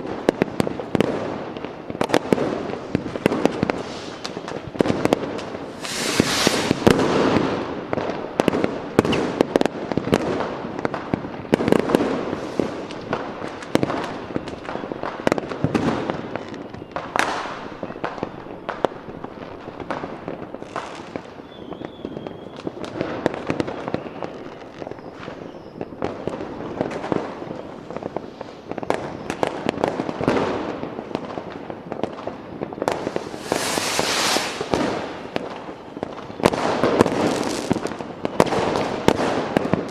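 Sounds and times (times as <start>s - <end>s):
firecrackers banging and crackling: 0.0s - 39.9s
hissing firework bursts: 0.6s - 10.1s, 11.6s - 14.6s, 32.8s - 38.0s
faint firework whistle: 3.2s - 7.6s, 9.0s - 9.4s, 12.1s - 13.1s, 20.5s - 27.8s, 28.4s - 29.6s, 32.8s - 38.9s.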